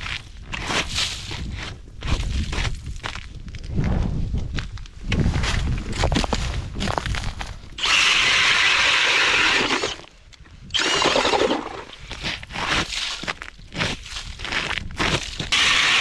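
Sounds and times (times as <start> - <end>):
ice crunching and scraping: 0.0 - 16.0
ice auger grinding: 7.8 - 16.0.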